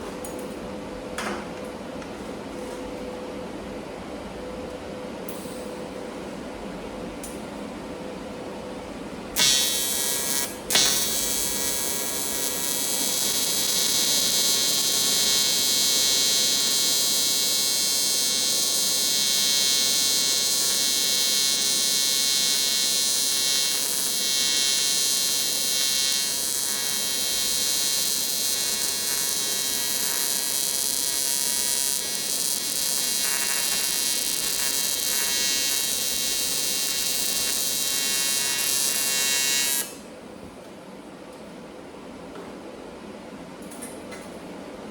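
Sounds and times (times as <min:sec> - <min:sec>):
welding arc buzzing: 0:09.4 - 0:40.1.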